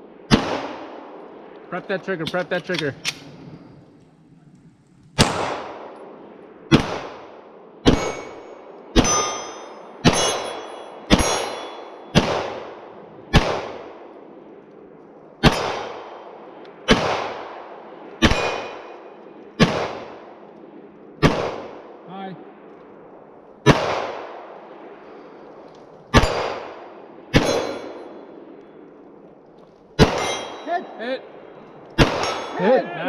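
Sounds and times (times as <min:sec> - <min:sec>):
gunshots with echo: 0:00.3 - 0:01.2, 0:05.2 - 0:06.1, 0:06.7 - 0:14.0, 0:15.4 - 0:19.0, 0:19.6 - 0:20.3, 0:21.2 - 0:21.8, 0:23.6 - 0:24.6, 0:26.1 - 0:28.3, 0:30.0 - 0:32.7
steel target ringing: 0:07.9 - 0:12.2, 0:15.4 - 0:16.1, 0:18.2 - 0:19.0, 0:26.2 - 0:28.2, 0:30.0 - 0:31.0, 0:32.0 - 0:32.8.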